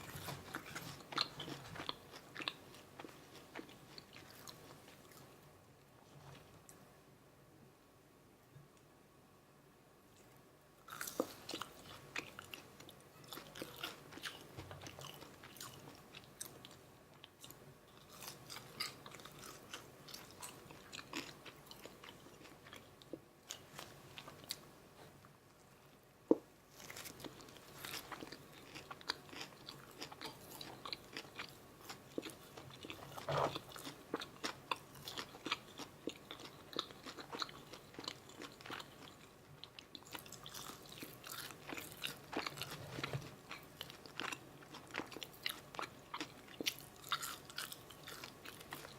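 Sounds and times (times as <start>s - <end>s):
chewing and crunching food: 0.0s - 5.4s, 10.9s - 25.1s, 26.3s - 48.9s.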